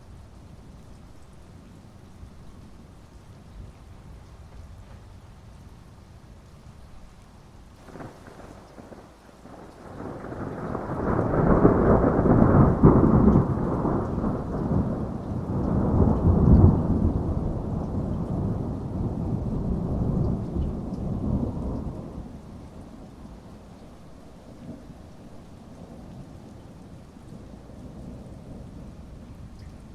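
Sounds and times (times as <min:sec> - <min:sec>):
heavy rain: 0:00.0 - 0:29.9
thunder rolling: 0:07.8 - 0:22.3.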